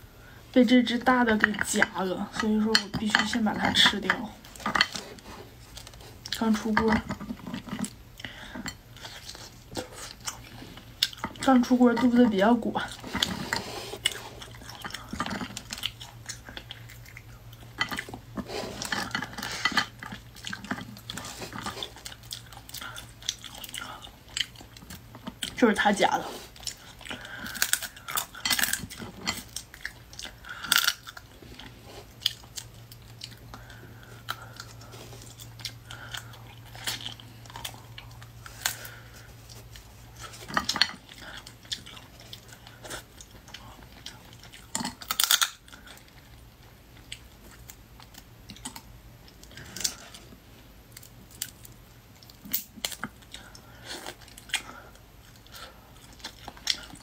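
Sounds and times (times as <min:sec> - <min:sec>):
chewing and crunching: 0:00.8 - 0:57.0
sharp crunches and clicks: 0:39.6 - 0:46.2.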